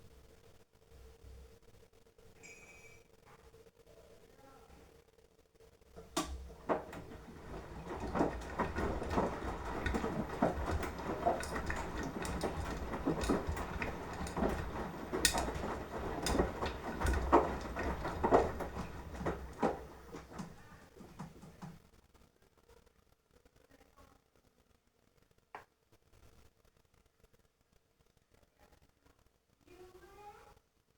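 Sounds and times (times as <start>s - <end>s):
laundry thudding in drum: 6.0s - 21.8s
washing machine motor rumble: 6.0s - 21.8s.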